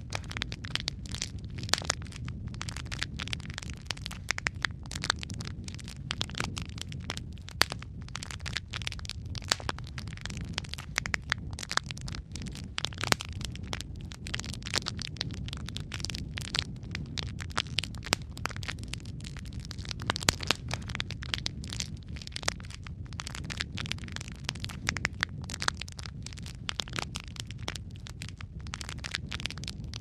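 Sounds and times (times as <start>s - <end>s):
logs burning in fireplace: 0.0s - 30.0s.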